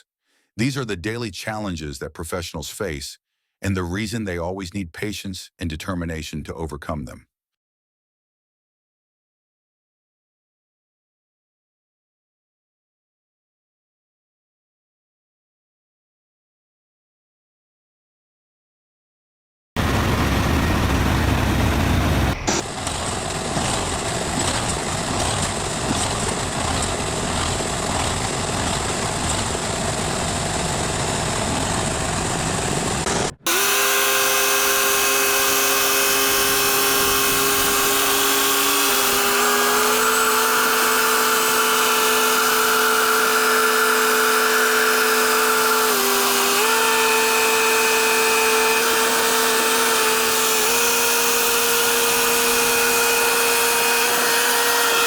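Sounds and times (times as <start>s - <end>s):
multi-tone machine whine: 19.8s - 55.0s
rough engine-like noise: 19.8s - 55.0s.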